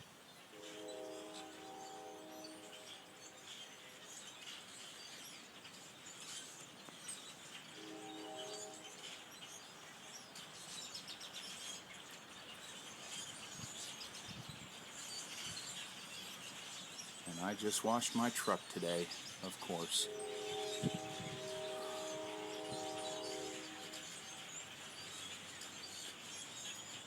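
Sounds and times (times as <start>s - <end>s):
blackbird flock chirping: 7.9s - 27.0s.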